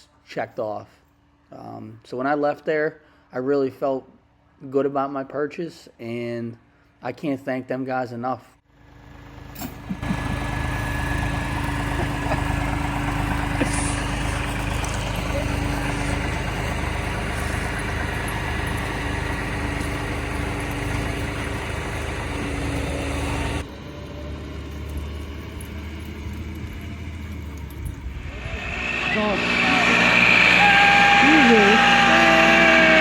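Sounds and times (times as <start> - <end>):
tractor diesel engine running: 8.7 - 33.0.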